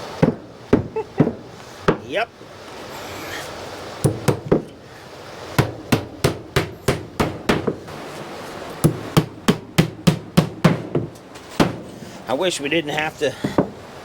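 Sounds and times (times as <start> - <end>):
hammer blows: 5.5 - 12.2.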